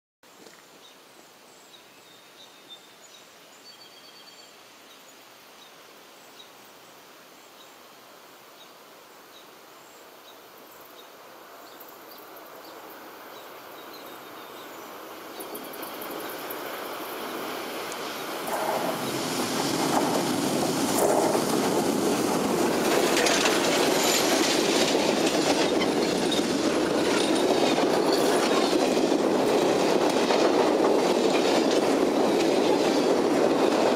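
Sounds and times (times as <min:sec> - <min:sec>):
passenger train passing: 0:12.2 - 0:33.9
wheels clicking over rail joints: 0:17.8 - 0:33.9.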